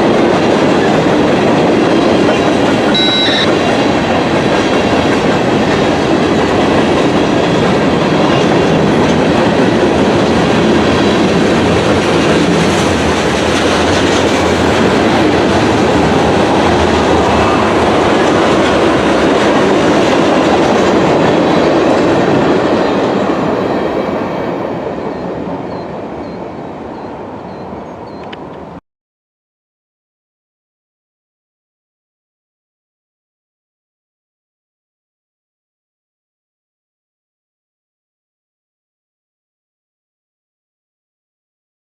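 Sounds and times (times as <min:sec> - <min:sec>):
freight train rolling past: 0:00.0 - 0:28.8.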